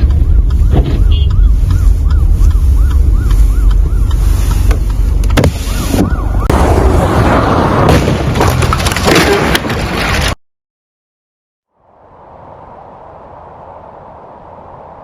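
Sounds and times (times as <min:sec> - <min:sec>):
electronic siren warbling: 0:00.0 - 0:04.7, 0:05.4 - 0:06.6
low rumble of wind or traffic: 0:00.0 - 0:10.4, 0:11.7 - 0:15.0.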